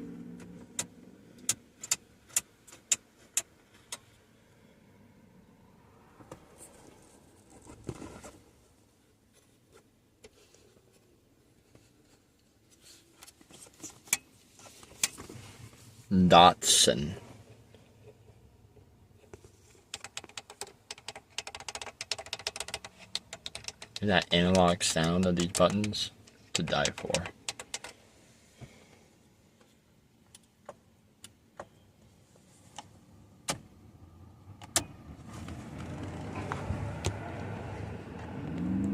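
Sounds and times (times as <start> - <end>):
push buttons clicking: 20.0 - 27.9.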